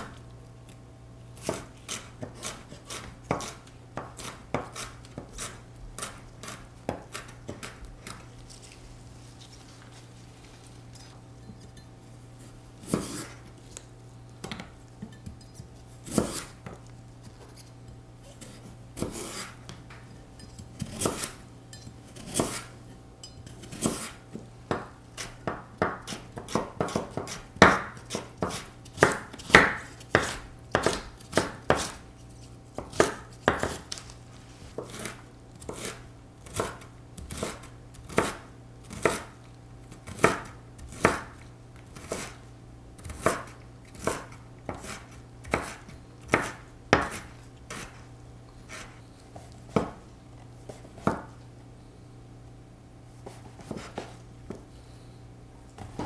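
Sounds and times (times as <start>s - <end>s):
knife chopping on cutting board: 1.4s - 8.3s, 12.8s - 13.4s, 16.0s - 16.8s, 18.4s - 20.0s, 20.8s - 21.4s, 22.1s - 22.8s, 23.5s - 32.1s, 32.8s - 34.0s, 34.7s - 39.4s, 40.0s - 42.4s, 43.0s - 48.0s, 48.7s - 50.0s, 50.7s - 51.4s, 53.2s - 54.6s.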